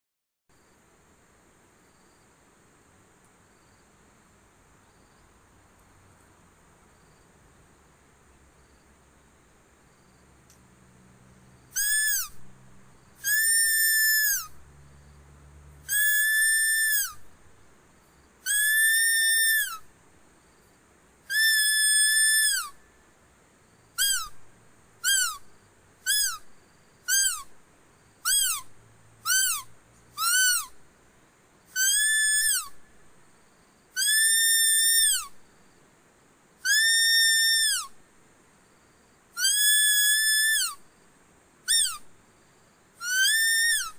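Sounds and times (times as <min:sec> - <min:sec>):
high whistled decoy call: 0:11.7 - 0:12.4, 0:13.2 - 0:14.6, 0:15.9 - 0:17.3, 0:18.4 - 0:19.9, 0:21.3 - 0:22.9, 0:24.0 - 0:24.4, 0:25.0 - 0:27.5, 0:28.2 - 0:30.8, 0:31.7 - 0:32.9, 0:33.9 - 0:35.4, 0:36.6 - 0:38.0, 0:39.4 - 0:40.8, 0:41.7 - 0:42.1, 0:43.0 - 0:43.9.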